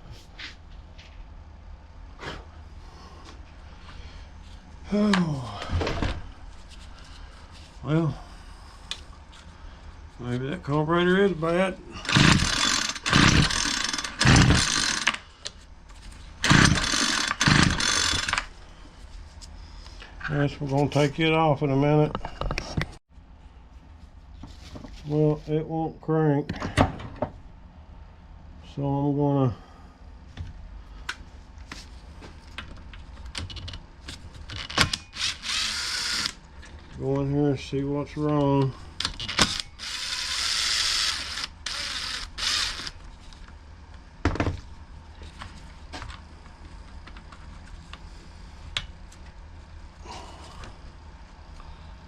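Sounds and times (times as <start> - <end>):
string trimmer recoil starter whirr: 12.0 - 15.2, 16.4 - 18.5, 35.0 - 36.4.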